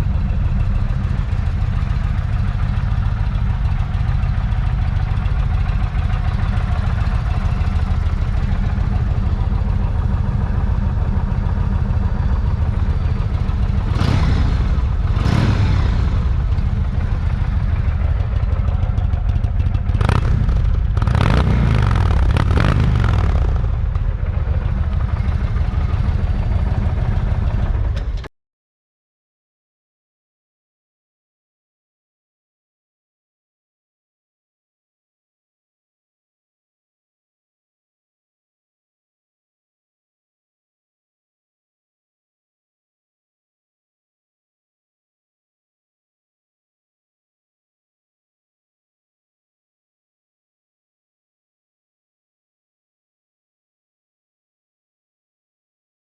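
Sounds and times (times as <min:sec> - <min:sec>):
motorcycle engine idling and revving: 0:00.0 - 0:28.3.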